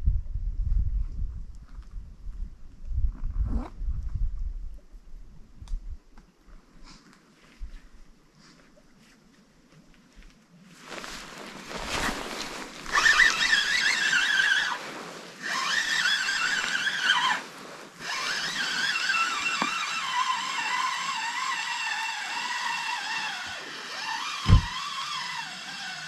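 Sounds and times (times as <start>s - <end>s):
fishing reel whining: 12.8s - 26.0s
dull thump: 24.5s - 24.8s.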